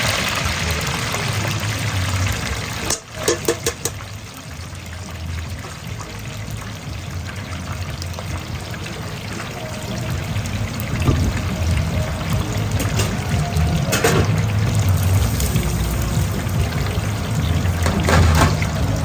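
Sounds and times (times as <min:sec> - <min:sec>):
kitchen rushing noise: 0:15.2 - 0:19.0.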